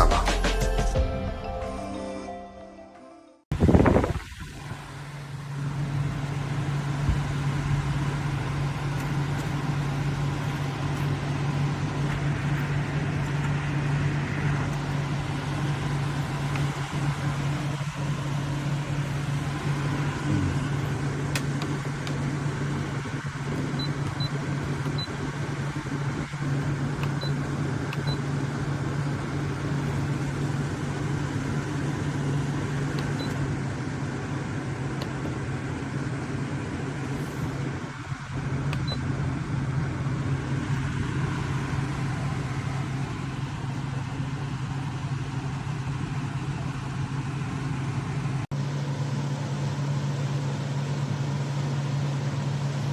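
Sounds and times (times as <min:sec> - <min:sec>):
fan air rushing: 0:03.5 - 0:45.8
air conditioner humming: 0:05.5 - 0:35.2.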